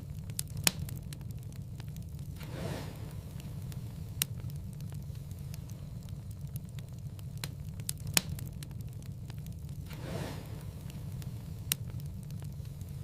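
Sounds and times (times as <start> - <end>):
low rumble of flames: 0.0 - 13.0
soft whoosh of flame: 0.0 - 13.0
wood fire crackling: 0.0 - 13.0.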